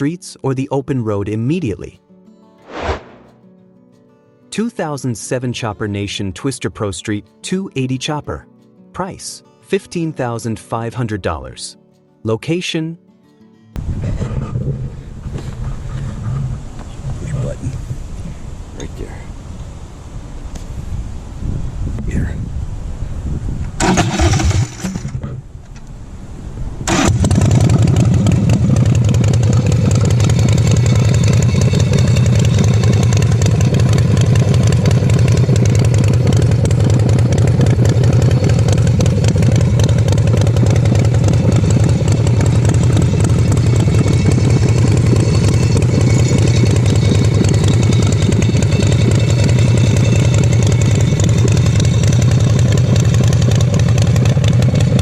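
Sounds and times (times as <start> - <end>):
engine cranking: 23.8 - 25.5, 26.9 - 55.0
motorcycle engine idling: 26.9 - 55.0.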